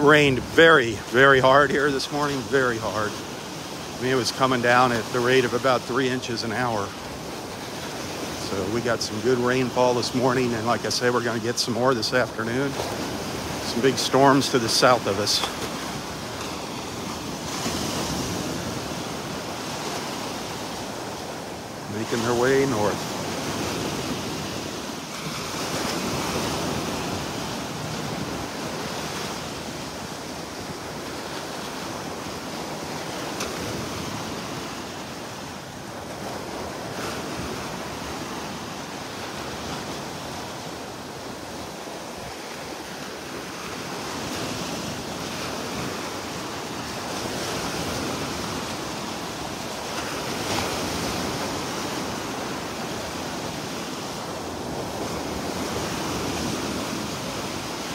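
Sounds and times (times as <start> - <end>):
surf washing on beach: 0.0 - 57.9.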